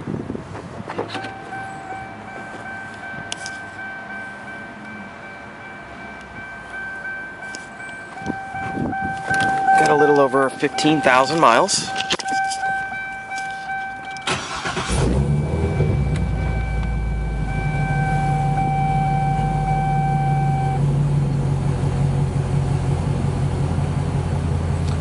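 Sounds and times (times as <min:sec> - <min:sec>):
car engine starting and idling: 0:00.7 - 0:25.0
electronic car chime: 0:01.2 - 0:20.8.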